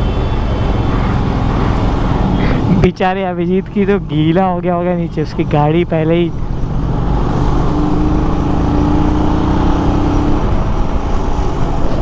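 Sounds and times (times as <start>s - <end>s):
heavy traffic: 0.0s - 12.0s
wind on microphone: 6.4s - 12.0s
steady single tone: 7.0s - 10.3s.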